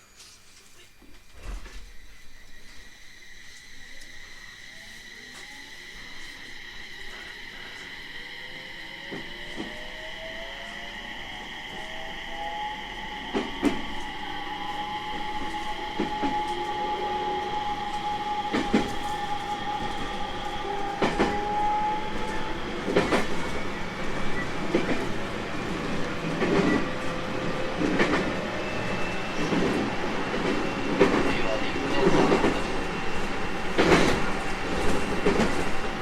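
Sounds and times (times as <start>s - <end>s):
electric train motor whine: 1.3s - 36.0s.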